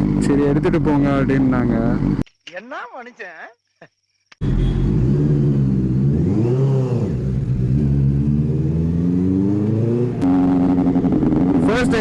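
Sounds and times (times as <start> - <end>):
motorcycle engine revving: 4.4 - 12.0.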